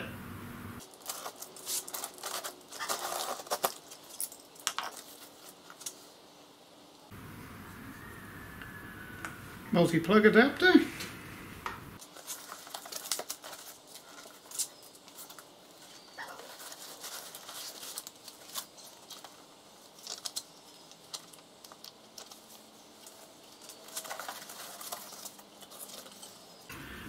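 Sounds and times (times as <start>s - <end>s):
foam packing crinkling: 0.8s - 6.0s, 12.0s - 26.7s.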